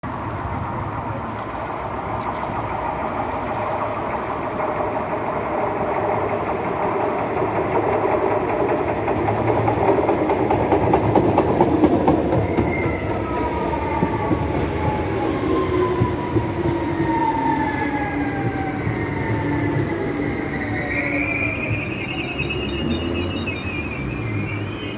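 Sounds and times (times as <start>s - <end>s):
train wheels rumbling on rails: 0.0s - 24.9s
whining tones sliding down: 11.0s - 24.9s.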